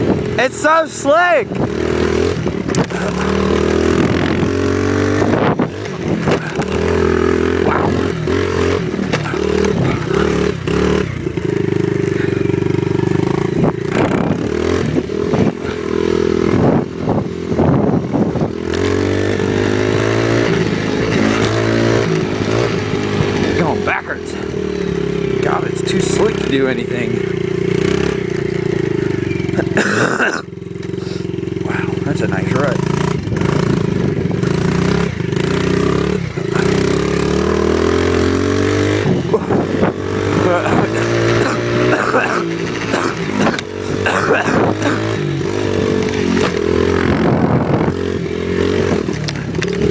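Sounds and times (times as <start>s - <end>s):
off-road vehicle engine running: 0.0s - 49.9s.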